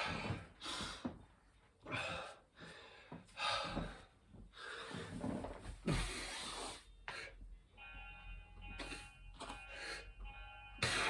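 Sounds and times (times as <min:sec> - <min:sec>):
man breathing hard: 0:00.0 - 0:01.2, 0:01.8 - 0:05.2.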